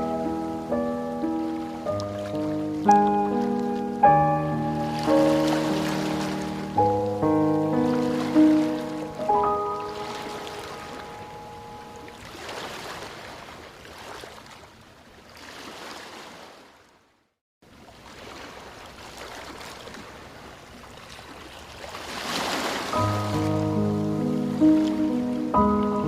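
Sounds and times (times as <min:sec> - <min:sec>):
held music notes: 0:00.0 - 0:12.2, 0:23.0 - 0:26.0
running water rushing: 0:00.0 - 0:14.5, 0:17.9 - 0:26.0.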